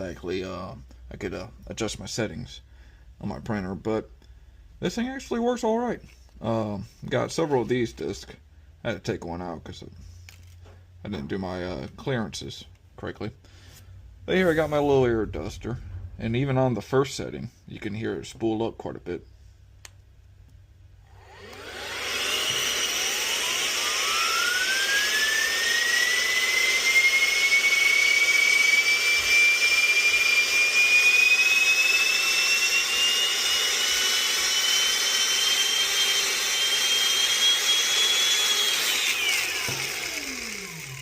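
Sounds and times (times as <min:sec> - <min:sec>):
turbine whine: 0:14.2 - 0:17.5, 0:21.0 - 0:41.0.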